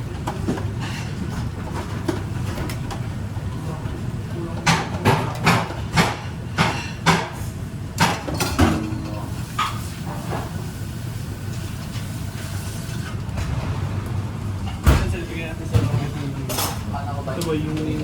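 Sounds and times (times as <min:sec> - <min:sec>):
kitchen ventilation hum: 0:00.0 - 0:18.0
kitchenware knocks and clatters: 0:04.6 - 0:09.2.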